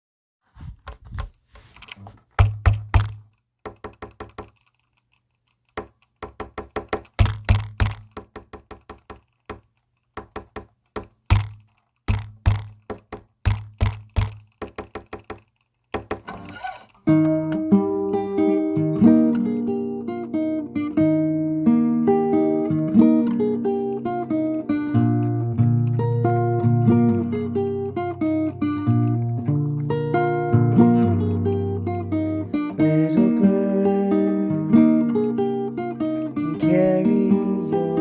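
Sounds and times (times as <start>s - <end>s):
rhythmic percussive knocking: 6.2s - 9.6s, 10.2s - 15.4s
acoustic guitar strumming: 16.2s - 38.0s.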